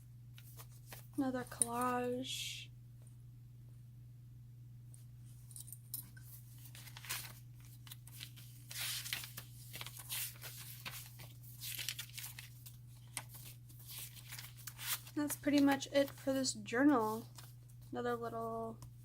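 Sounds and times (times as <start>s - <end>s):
steady low hum: 0.0s - 19.0s
paper pages rustling: 0.4s - 1.2s, 6.1s - 16.4s, 17.0s - 17.9s.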